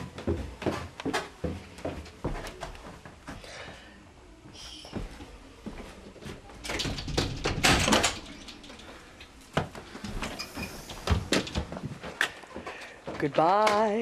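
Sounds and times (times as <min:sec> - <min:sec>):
knocks and clatters: 0:06.6 - 0:12.3.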